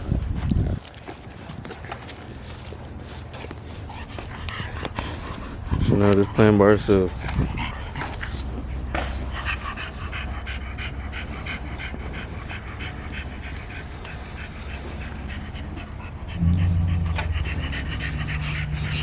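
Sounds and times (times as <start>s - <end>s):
dog panting: 0.0s - 19.0s
low steady hum: 12.6s - 19.0s.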